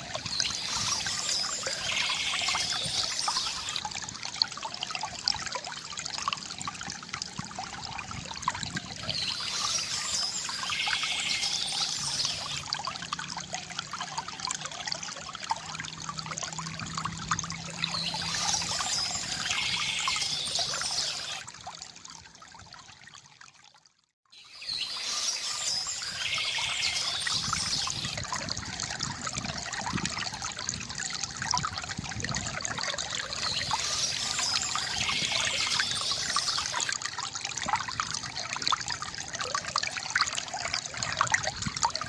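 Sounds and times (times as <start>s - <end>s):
water trickling from fountain: 0.0s - 42.0s
bird chirping: 24.4s - 28.2s.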